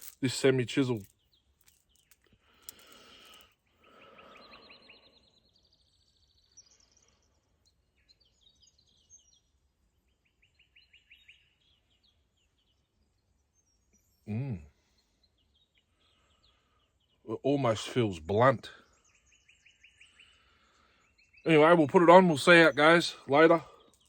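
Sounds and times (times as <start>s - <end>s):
faint bird trills: 2.8s - 9.2s.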